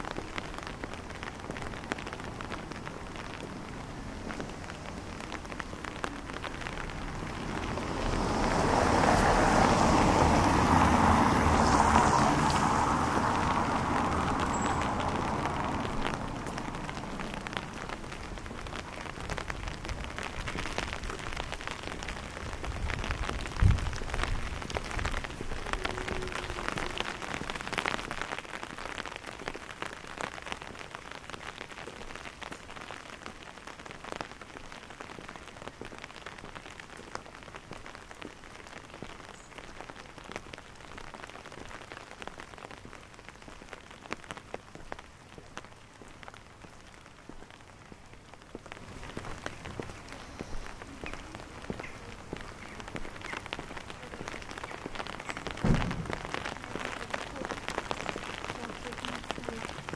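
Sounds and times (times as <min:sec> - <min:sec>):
rain on cobblestones: 0:00.0 - 0:59.9
low thump: 0:55.6 - 0:56.3.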